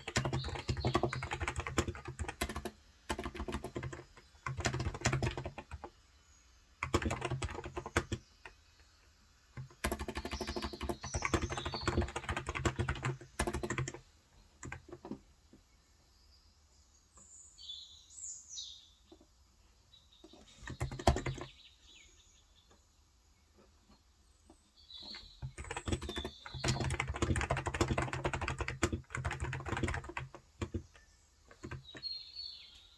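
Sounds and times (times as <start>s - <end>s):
keyboard typing: 0.0s - 6.0s, 6.8s - 8.6s, 9.6s - 15.2s, 20.3s - 21.5s, 25.0s - 32.1s
birds chirping: 0.0s - 32.9s.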